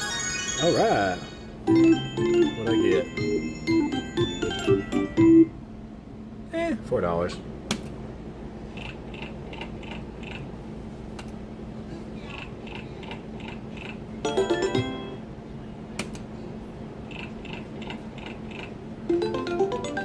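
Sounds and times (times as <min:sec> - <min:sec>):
slot machine jingle: 0:00.0 - 0:05.5, 0:14.2 - 0:15.2, 0:19.1 - 0:20.0
electrical hum: 0:00.0 - 0:20.0.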